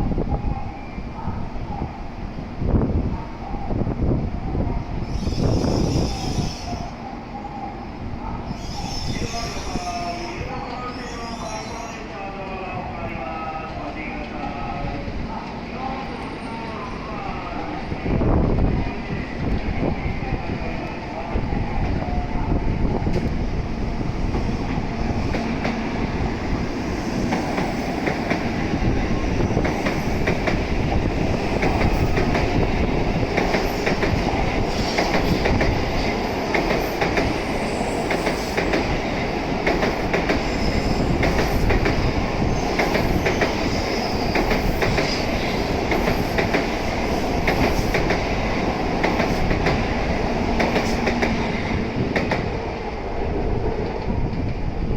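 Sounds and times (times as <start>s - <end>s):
train running gear rumble: 20.8s - 54.9s.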